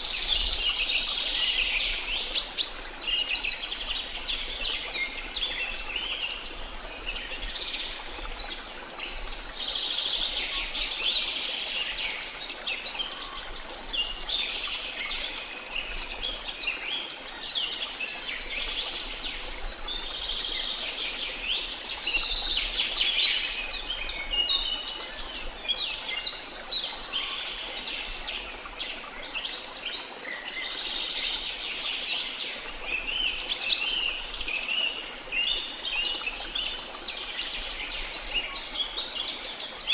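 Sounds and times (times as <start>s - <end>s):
rush of falling water: 0.0s - 39.9s.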